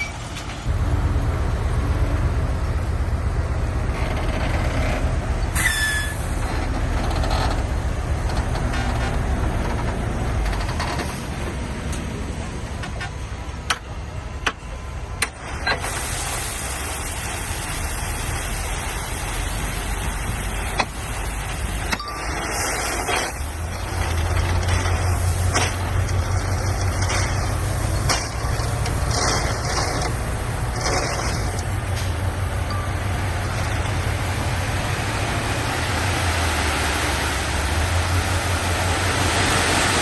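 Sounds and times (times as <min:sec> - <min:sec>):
metallic clanks and knocks: 0:00.0 - 0:12.1, 0:12.7 - 0:15.4, 0:21.9 - 0:35.8
bulldozer diesel engine: 0:00.0 - 0:40.0.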